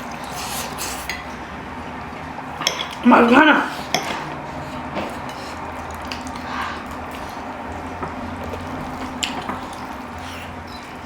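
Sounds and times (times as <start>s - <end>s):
wet chewing and eating: 3.7s - 11.0s.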